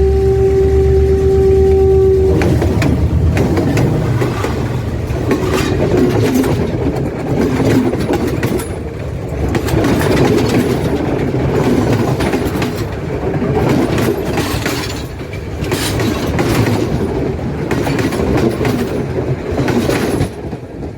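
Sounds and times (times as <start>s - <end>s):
train rumbling: 0.0s - 20.9s
wheels clicking over rail joints: 2.3s - 20.9s.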